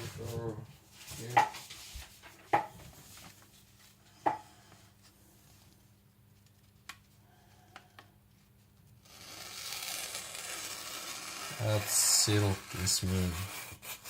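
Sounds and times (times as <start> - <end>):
knife slicing paper: 9.1 - 14.0.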